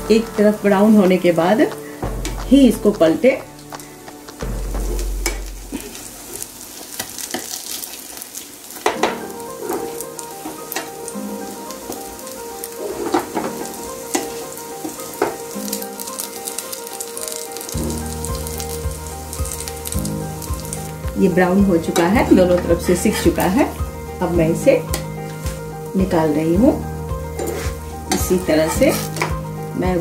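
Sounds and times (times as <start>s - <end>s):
low bump: 0.0s - 7.0s
patties frying in hot oil: 0.0s - 30.0s.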